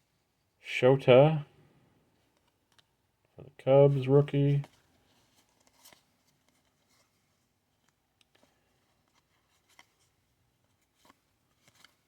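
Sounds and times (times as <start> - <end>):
trading cards being flipped: 10.8 - 12.0.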